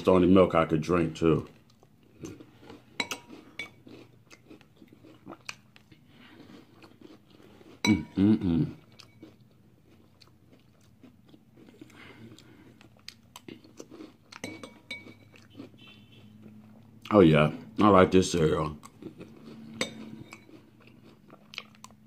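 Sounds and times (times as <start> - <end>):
person chewing crunchy cereal: 1.4 - 22.0
person humming: 8.1 - 8.7.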